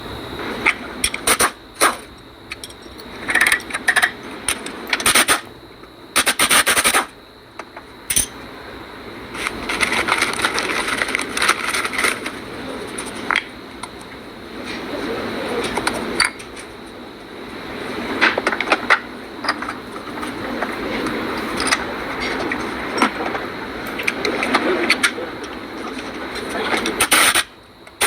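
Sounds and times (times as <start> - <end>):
tools clinking on metal: 8.1 - 8.4.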